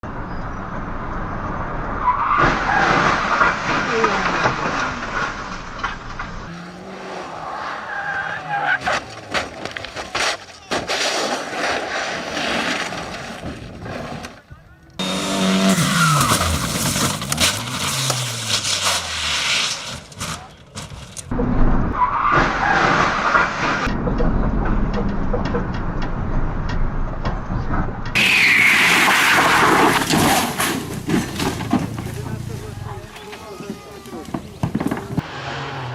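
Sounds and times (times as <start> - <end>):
loud road noise: 0.0 - 35.9
car tyres skidding: 2.0 - 14.4, 15.0 - 21.2, 22.0 - 23.9, 28.2 - 35.9.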